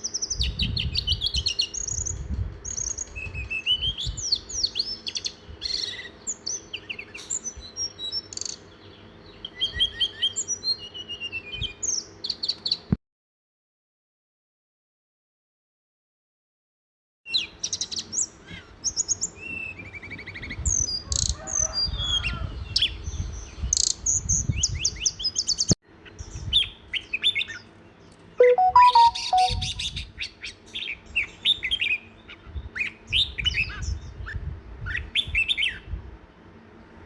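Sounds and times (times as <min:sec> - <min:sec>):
songbirds chirping and trilling: 0:00.0 - 0:12.9.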